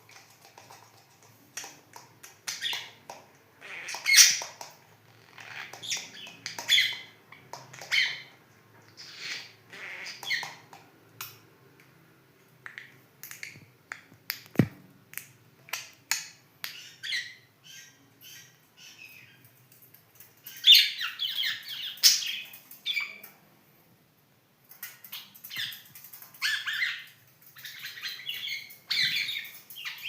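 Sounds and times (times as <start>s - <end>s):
budgerigars chirping: 3.6s - 4.5s, 5.4s - 7.1s, 7.8s - 8.3s, 9.0s - 10.6s.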